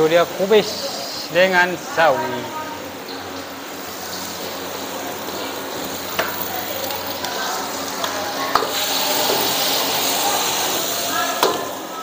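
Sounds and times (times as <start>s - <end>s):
vegetables sizzling in a wok: 0.0s - 12.0s.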